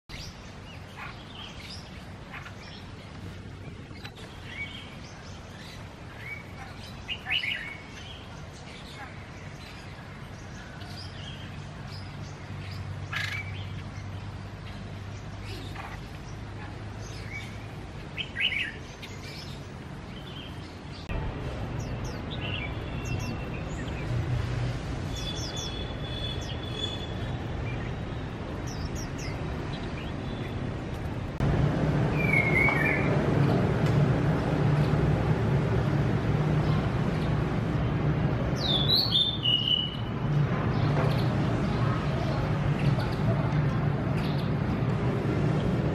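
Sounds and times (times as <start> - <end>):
songbirds chirping: 0.0 - 45.9
whistled bird phrases: 32.2 - 33.1, 38.6 - 40.1.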